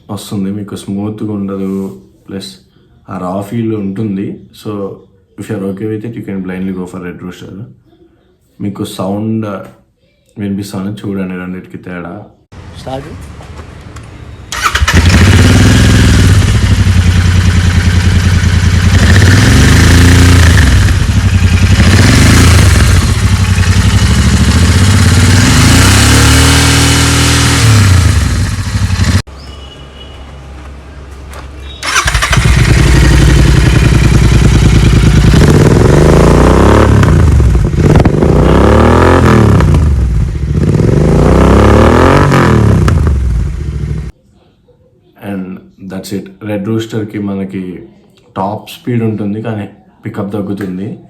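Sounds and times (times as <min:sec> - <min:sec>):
motorcycle engine revving: 0:14.5 - 0:30.2, 0:31.6 - 0:44.1.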